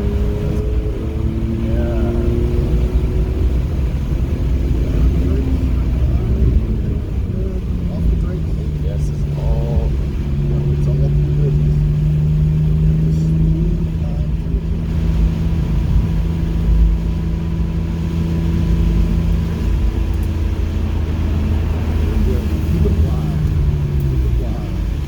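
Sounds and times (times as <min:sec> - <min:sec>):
car engine running: 0:00.0 - 0:25.0
road noise: 0:00.0 - 0:25.0.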